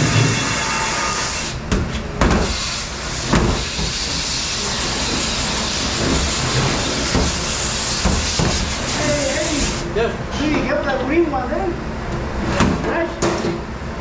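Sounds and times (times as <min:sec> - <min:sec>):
dishwasher spraying hiss: 0:00.0 - 0:01.6, 0:02.4 - 0:09.9.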